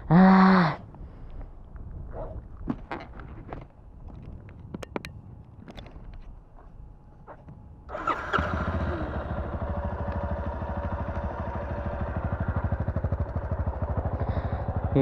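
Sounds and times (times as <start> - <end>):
motorcycle engine idling: 7.9 - 15.0
motorcycle engine starting: 7.9 - 15.0.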